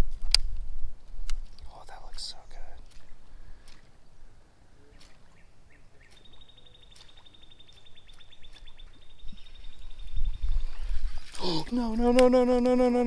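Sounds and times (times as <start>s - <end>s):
songbird trilling: 1.5s - 11.0s.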